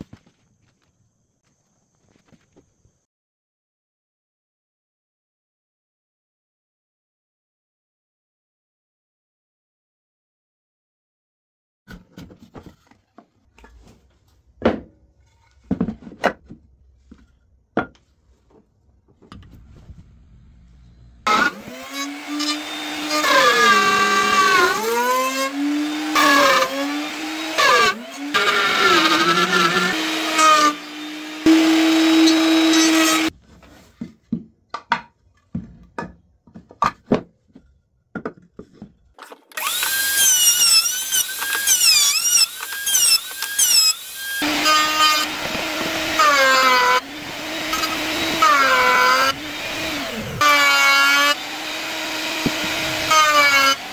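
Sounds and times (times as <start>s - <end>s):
power tool cutting wood: 21.2s - 33.3s, 39.5s - 53.9s
knocks of wood being handled: 33.5s - 39.3s.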